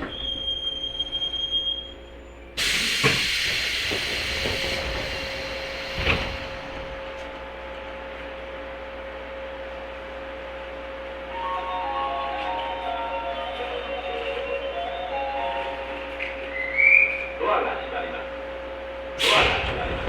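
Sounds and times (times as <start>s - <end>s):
train running noise: 0.0s - 20.0s
compressed air hiss: 2.6s - 6.6s
sliding doors thumping: 2.6s - 7.3s.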